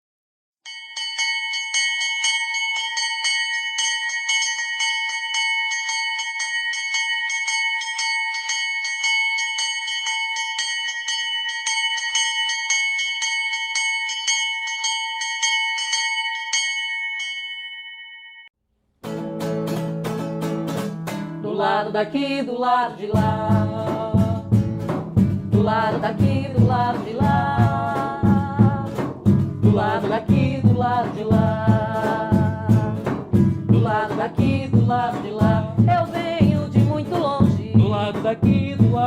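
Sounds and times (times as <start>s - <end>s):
bell struck rapidly: 0.7s - 18.2s.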